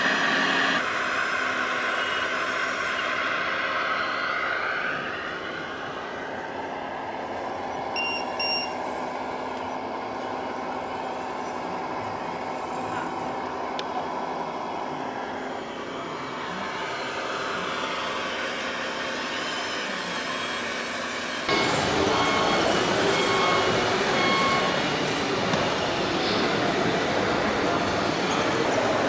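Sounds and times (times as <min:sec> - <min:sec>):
model truck motor hum: 0:05.0 - 0:29.0
short high beeps: 0:08.0 - 0:08.8, 0:21.5 - 0:24.8.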